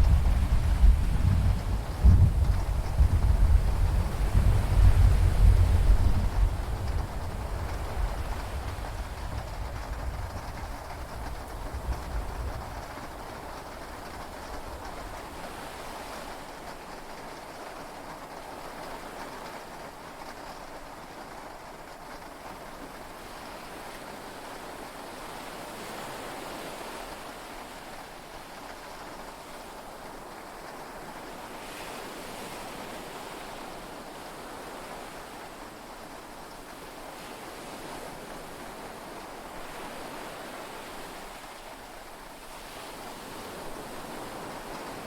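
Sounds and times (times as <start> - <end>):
low thunder rumble: 0.0 - 14.5
heavy rain and sea waves: 0.0 - 45.0.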